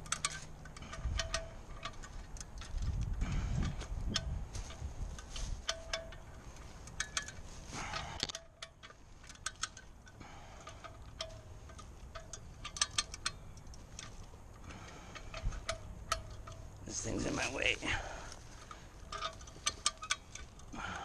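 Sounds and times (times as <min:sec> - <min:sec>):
metallic chain clicks and clinks: 0:00.0 - 0:02.9, 0:03.6 - 0:17.7
rustling scrape: 0:04.4 - 0:09.3.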